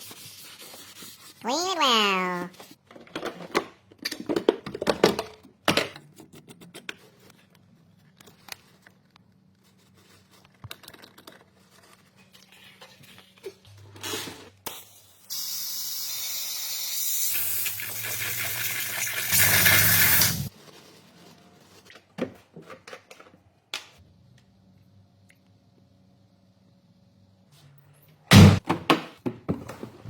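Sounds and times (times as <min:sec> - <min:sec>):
aerosol spray can hissing: 0:15.2 - 0:20.5.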